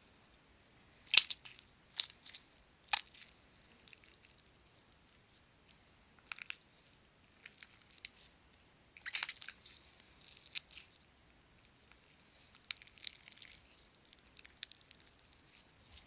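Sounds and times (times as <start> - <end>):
slime squished by hand: 1.0 - 4.5, 9.0 - 11.0, 11.6 - 16.0.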